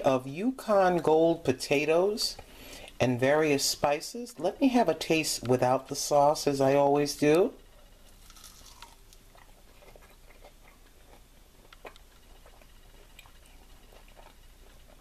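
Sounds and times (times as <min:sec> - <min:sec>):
quiet chewing: 0:07.8 - 0:15.0.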